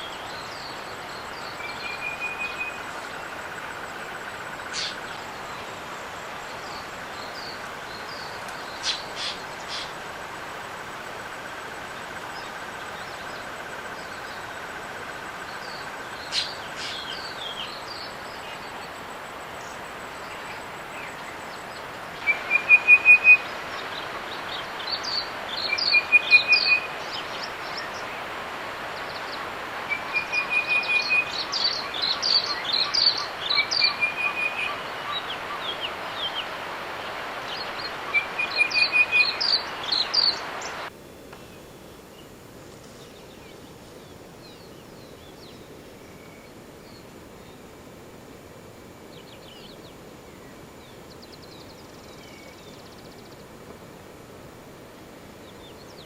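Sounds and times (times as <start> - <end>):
bird singing trills: 0.0 - 3.3, 22.2 - 23.9, 24.5 - 28.0, 29.9 - 36.4, 37.5 - 40.9
steady outdoor hiss: 0.0 - 56.0.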